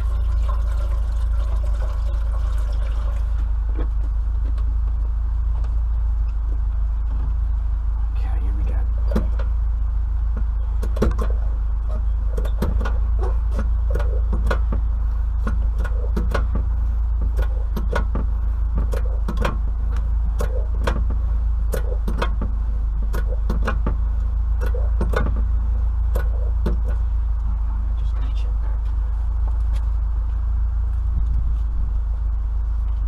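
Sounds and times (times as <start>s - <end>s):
steady low hum: 0.0s - 33.0s
pump clicks and knocks: 10.4s - 11.4s, 12.4s - 19.6s, 20.4s - 24.0s, 24.6s - 25.5s.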